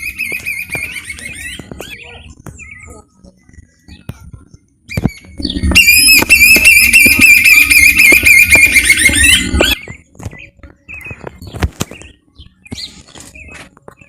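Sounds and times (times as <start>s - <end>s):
bird singing loudly: 0.0s - 3.0s, 4.9s - 11.2s.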